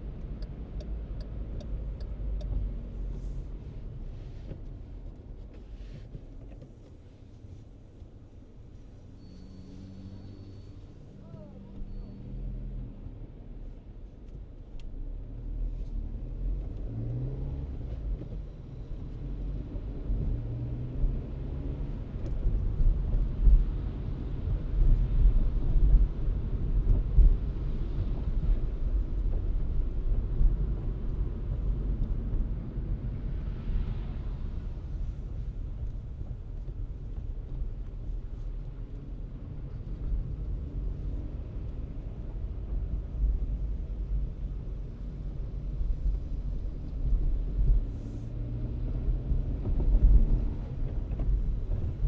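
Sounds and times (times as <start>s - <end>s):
road rumble: 0.0s - 52.0s
car engine accelerating: 15.0s - 52.0s.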